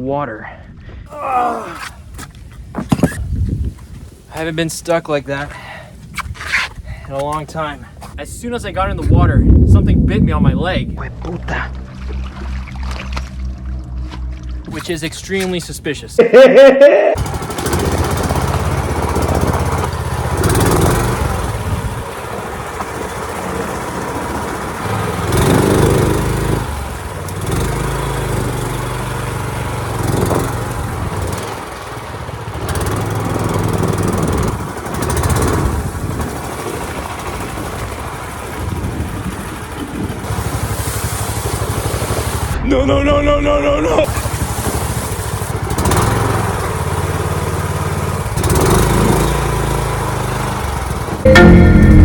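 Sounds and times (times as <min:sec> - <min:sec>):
small gas engine revving: 0:17.2 - 0:37.0, 0:44.1 - 0:51.2.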